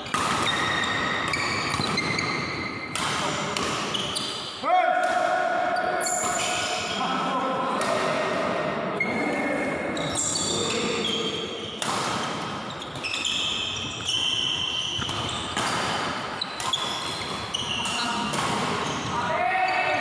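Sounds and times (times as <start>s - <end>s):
shoes squeaking on court floor: 0.0s - 4.6s, 5.8s - 7.0s, 9.0s - 20.0s
racket hitting shuttlecock: 0.0s - 5.4s, 11.8s - 19.1s.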